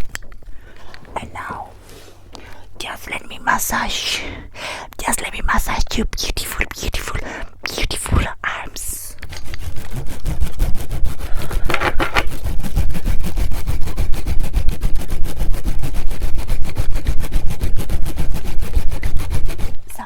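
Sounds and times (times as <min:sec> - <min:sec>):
hands rubbing on microphones: 0:00.0 - 0:03.7, 0:07.7 - 0:20.0.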